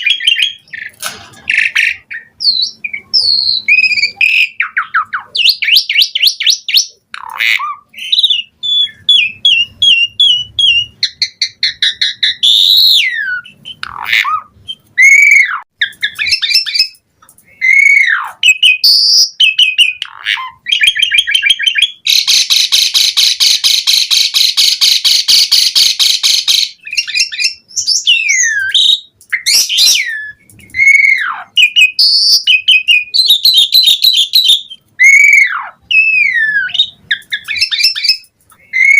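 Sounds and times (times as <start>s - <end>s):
starling singing: 0.0s - 38.9s
rapid rattling bird chatter: 22.0s - 34.6s.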